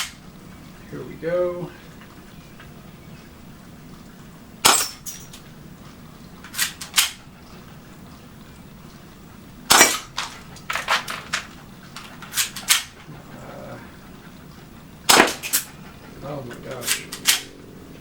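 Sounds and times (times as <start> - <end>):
airsoft pistol shots: 4.6 - 5.0, 9.7 - 10.1, 15.1 - 15.6.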